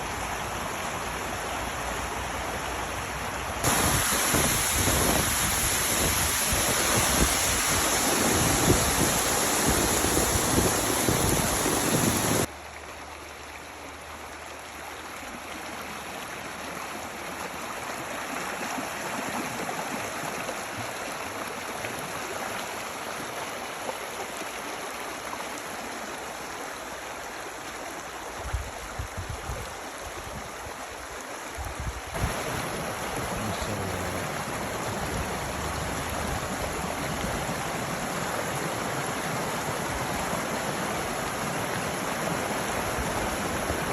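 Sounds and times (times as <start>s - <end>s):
stream flowing: 0.0s - 43.9s.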